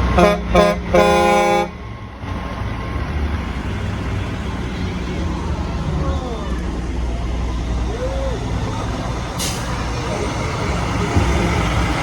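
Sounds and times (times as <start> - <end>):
truck horn blasts: 0.0 - 1.8
low rumble of engines: 0.0 - 12.0.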